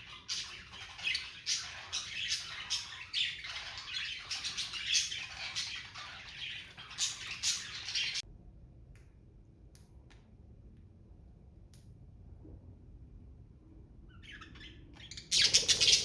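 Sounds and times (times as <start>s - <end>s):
budgerigars chattering and squawking: 14.4s - 16.0s.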